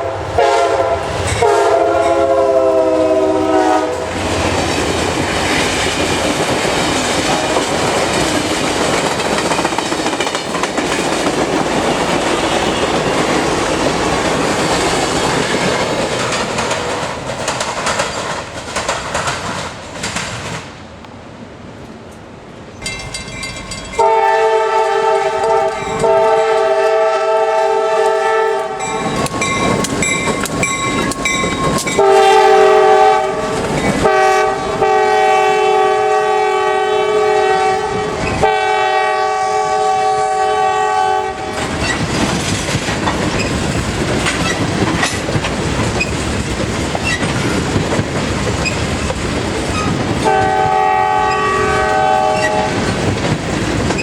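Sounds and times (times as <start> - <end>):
locomotive air horn blasts: 0.0 - 4.2, 7.3 - 7.6, 24.0 - 29.1, 32.0 - 41.6, 50.2 - 52.8
train rumbling past: 0.0 - 54.0.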